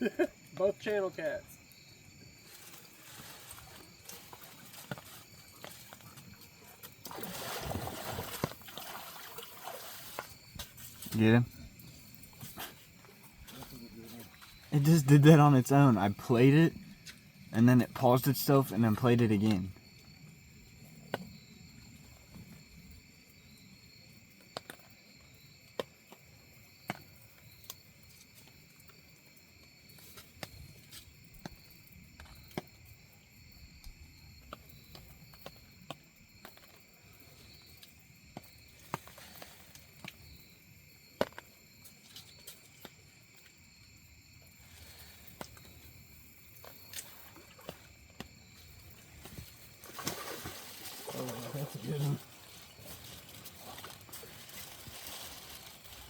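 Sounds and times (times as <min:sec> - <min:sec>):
night insects chirping: 0:00.0 - 0:56.0
faint sharp ticks and taps: 0:33.8 - 0:36.7.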